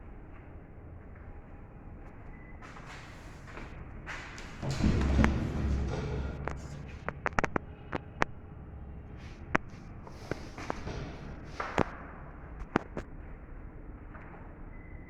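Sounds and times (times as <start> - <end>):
low steady hum: 0.0 - 15.0
sharp clicks and taps: 6.4 - 8.3.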